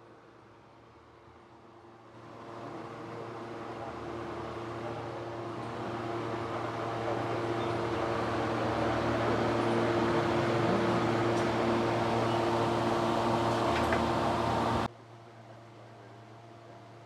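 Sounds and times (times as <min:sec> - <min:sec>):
motor humming: 0:09.6 - 0:14.9.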